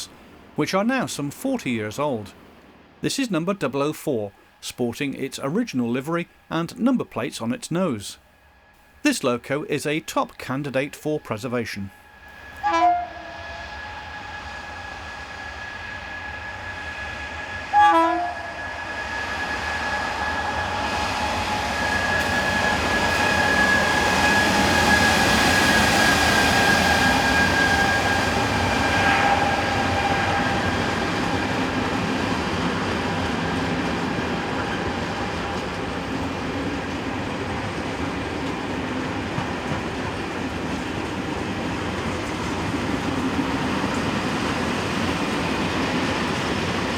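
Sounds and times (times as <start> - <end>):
locomotive whine: 0.0 - 46.9
train rolling past: 0.0 - 46.9
train horn blast: 12.3 - 14.9, 16.1 - 19.1, 27.4 - 31.2.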